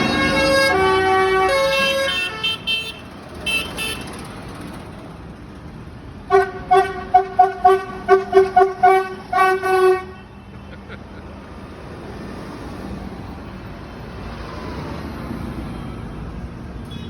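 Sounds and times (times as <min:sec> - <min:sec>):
vehicle horns tooting: 0:00.0 - 0:04.2, 0:06.3 - 0:10.8, 0:16.8 - 0:17.0.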